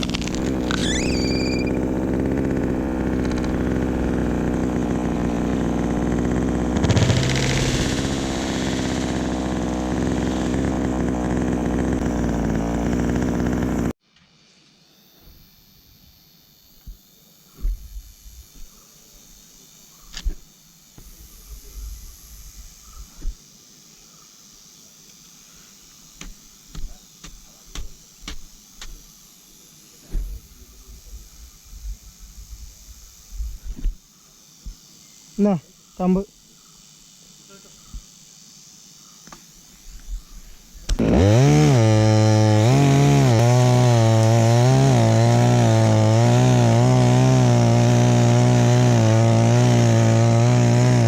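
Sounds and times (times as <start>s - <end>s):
chainsaw running: 0.0s - 14.0s, 26.2s - 29.0s, 40.8s - 51.0s
thump: 17.6s - 17.9s, 30.0s - 30.4s.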